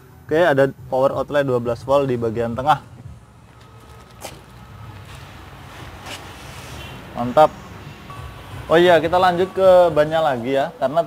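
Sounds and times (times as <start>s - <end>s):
steady low rumble: 0.8s - 6.4s.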